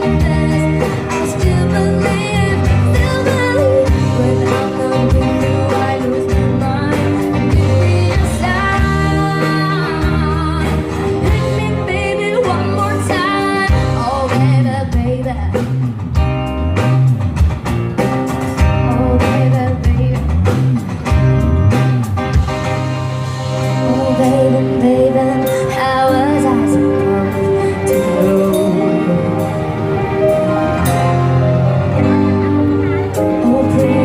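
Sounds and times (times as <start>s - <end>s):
lead singer: 0.0s - 16.0s, 18.6s - 20.9s, 23.4s - 34.0s
live band music: 0.0s - 34.0s
strong bass line: 13.7s - 34.0s.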